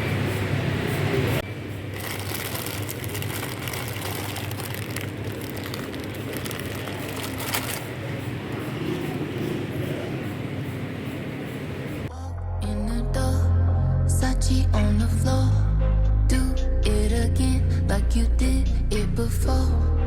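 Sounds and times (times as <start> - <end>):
plastic packaging crinkling: 1.9 - 8.2.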